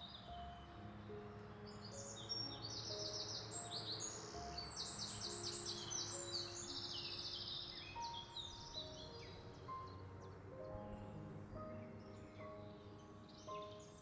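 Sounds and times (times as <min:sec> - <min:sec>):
birds chirping: 0:00.0 - 0:14.0
soft background music: 0:00.0 - 0:14.0.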